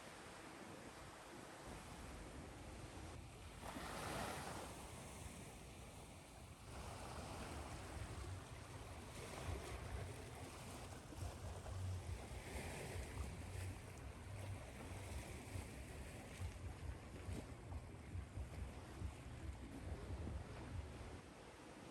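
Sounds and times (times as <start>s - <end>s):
low rumble: 13.0s - 21.2s.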